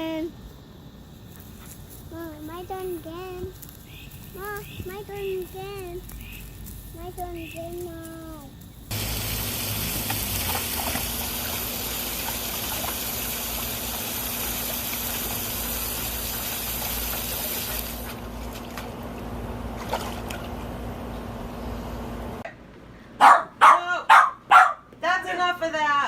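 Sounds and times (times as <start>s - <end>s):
water running: 2.1s - 20.7s
dog barking: 23.2s - 24.9s.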